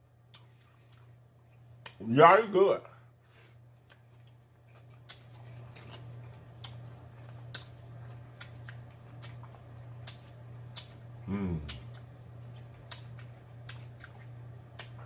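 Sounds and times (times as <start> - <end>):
steady low hum: 0.0 - 15.0
chewing with wet mouth clicks: 0.3 - 2.0, 3.7 - 15.0.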